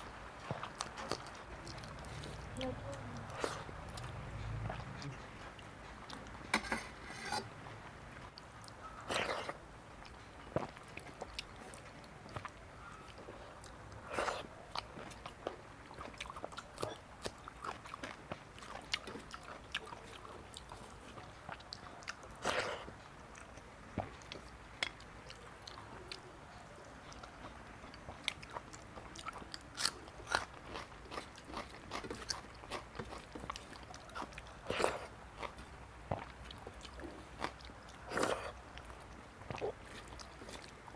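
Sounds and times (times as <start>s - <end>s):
person chewing food: 0.0s - 6.8s, 7.6s - 40.9s.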